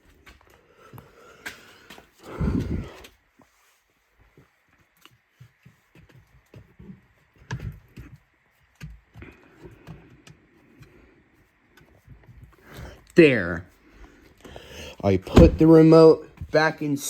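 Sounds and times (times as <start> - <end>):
dull thumps: 15.3 - 16.6.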